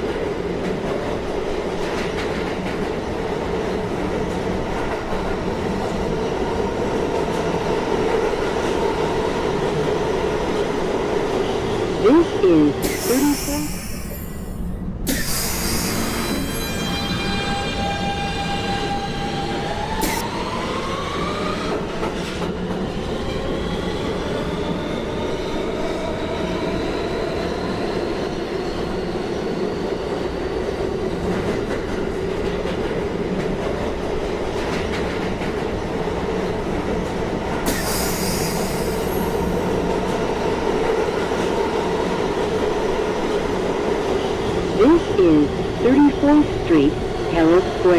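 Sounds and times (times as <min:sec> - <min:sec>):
high hiss or squeal: 0:12.8 - 0:17.2, 0:37.7 - 0:39.7.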